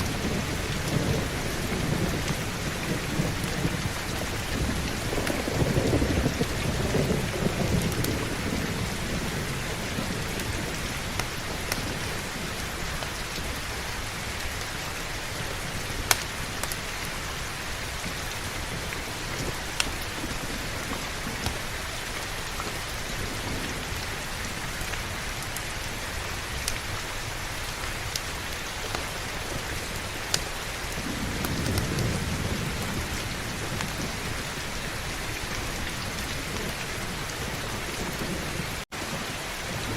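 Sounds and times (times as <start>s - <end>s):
heavy rain: 0.0s - 39.9s
thunder rumble: 0.0s - 39.9s
fireplace crackling pops: 30.1s - 30.6s.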